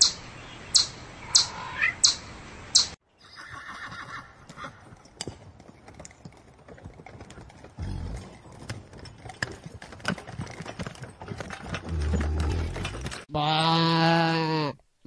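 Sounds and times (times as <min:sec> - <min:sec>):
horse whinnying: 0:03.2 - 0:04.8.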